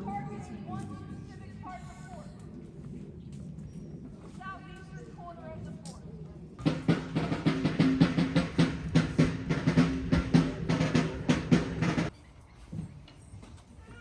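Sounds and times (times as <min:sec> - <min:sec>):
snare drum rolls: 0:06.6 - 0:12.1.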